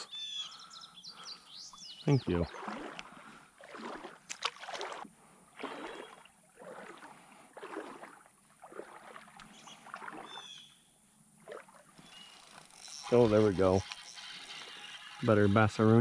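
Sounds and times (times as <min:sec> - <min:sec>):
bird chirping: 0:00.0 - 0:02.7, 0:09.5 - 0:10.9, 0:12.0 - 0:15.3
water sloshing in creek: 0:01.1 - 0:16.0.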